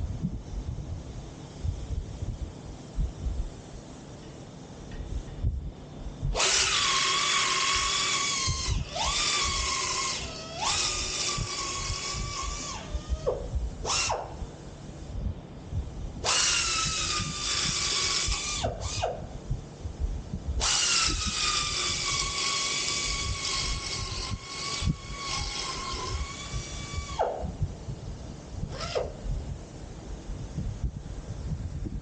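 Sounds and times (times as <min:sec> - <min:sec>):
power tool motor whining: 0:06.3 - 0:14.5, 0:16.2 - 0:19.3, 0:20.6 - 0:27.6, 0:28.6 - 0:29.2.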